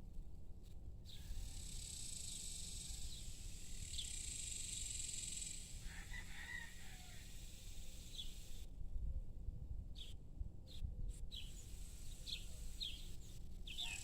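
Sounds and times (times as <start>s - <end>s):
high-pitched hiss: 1.1s - 8.7s, 11.4s - 14.0s
rooster crowing: 5.8s - 7.4s, 13.8s - 14.0s
bird chirps: 11.3s - 14.0s.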